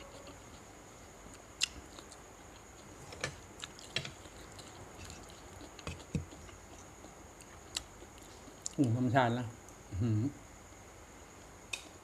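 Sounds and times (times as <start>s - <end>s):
faint steady high tone: 0.0s - 0.6s.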